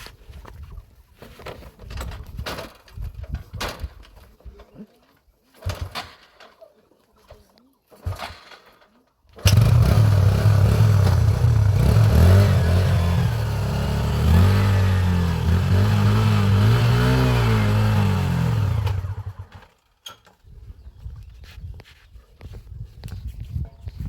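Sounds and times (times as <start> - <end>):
motorcycle engine revving: 9.4 - 19.8.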